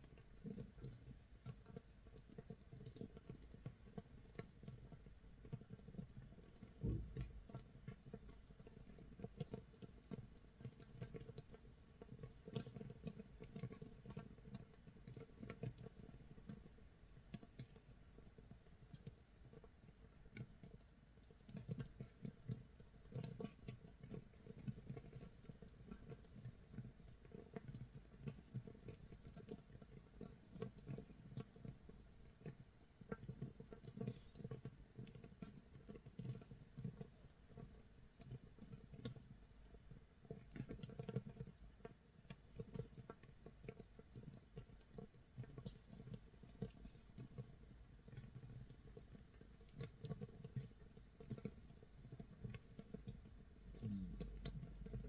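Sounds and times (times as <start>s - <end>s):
fermenting bubbles popping: 48.3s - 55.0s.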